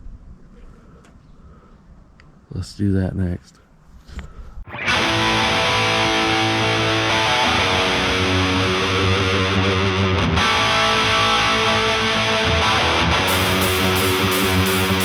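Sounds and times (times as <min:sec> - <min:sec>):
distorted electric guitar chords: 0:04.7 - 0:15.0.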